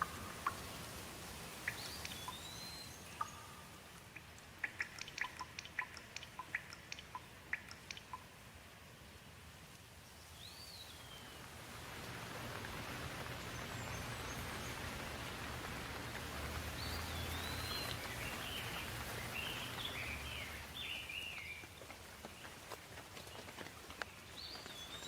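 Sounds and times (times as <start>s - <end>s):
bird chirping: 0.0s - 8.4s, 10.0s - 11.5s, 13.2s - 22.6s, 23.2s - 25.0s
steady rain: 0.0s - 25.0s.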